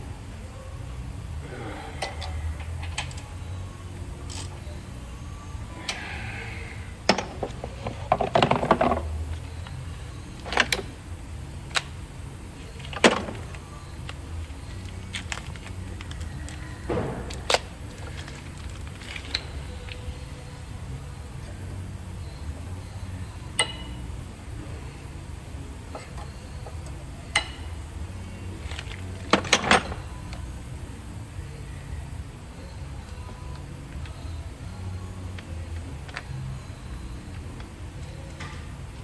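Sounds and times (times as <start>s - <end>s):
low steady hum: 0.0s - 39.0s
metal tools clicking and clanking: 23.6s - 24.0s, 28.7s - 30.4s.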